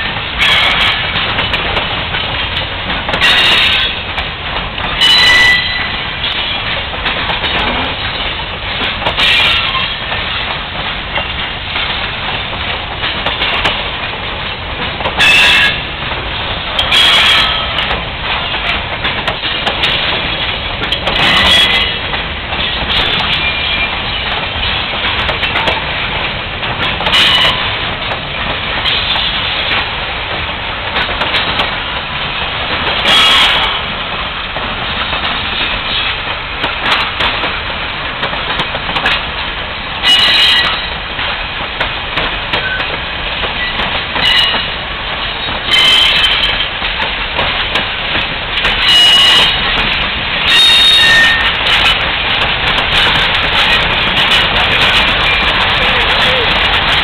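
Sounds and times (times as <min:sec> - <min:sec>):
train clanks and screeches: 0:00.0 - 0:57.0
train wheels rumbling and rattling: 0:00.0 - 0:57.0
high wheel squeal: 0:00.4 - 0:01.1, 0:03.2 - 0:04.0, 0:05.0 - 0:06.6, 0:15.2 - 0:15.9, 0:16.8 - 0:17.8, 0:21.2 - 0:22.0, 0:27.1 - 0:27.7, 0:40.0 - 0:40.9, 0:43.6 - 0:44.7, 0:45.7 - 0:46.5, 0:48.8 - 0:49.7, 0:50.5 - 0:51.9.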